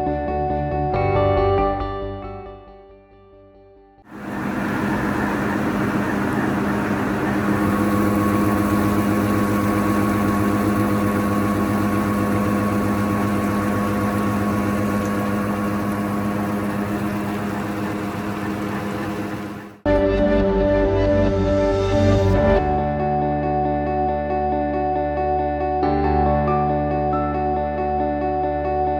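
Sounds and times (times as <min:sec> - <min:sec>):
rushing noisy wash: 0:04.1 - 0:23.2
surface grinder humming: 0:04.1 - 0:23.2.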